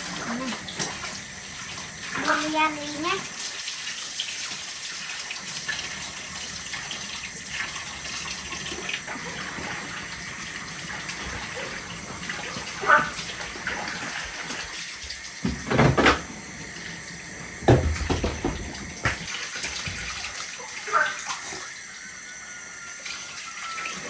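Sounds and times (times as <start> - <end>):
rushing water: 0.0 - 15.6
knocks and clatters: 17.6 - 19.3.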